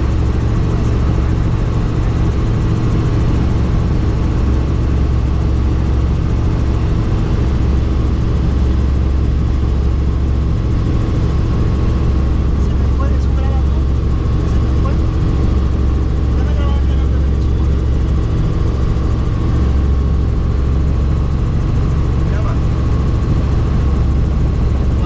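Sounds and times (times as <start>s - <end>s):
helicopter rotor and engine drone: 0.0s - 25.0s.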